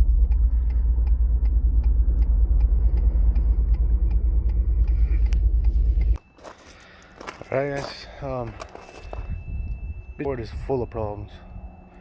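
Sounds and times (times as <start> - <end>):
engine ticking: 0.0 - 6.2
pickup truck engine rumbling: 0.0 - 6.2.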